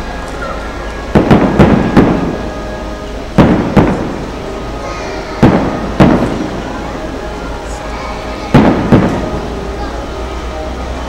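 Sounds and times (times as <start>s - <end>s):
firework shells bursting: 1.1s - 2.7s, 3.3s - 4.5s, 5.4s - 6.7s, 8.5s - 9.5s.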